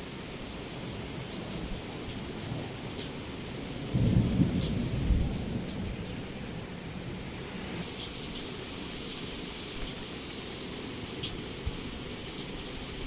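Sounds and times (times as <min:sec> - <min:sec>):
heavy rain against a window: 0:00.0 - 0:13.0
low thunder clap rolling: 0:03.9 - 0:06.2.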